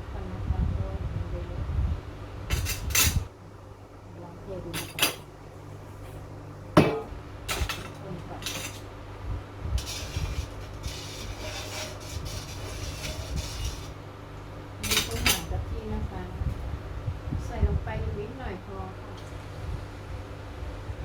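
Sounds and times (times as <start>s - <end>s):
utensil scraping wok: 7.6s - 8.9s, 9.8s - 14.1s.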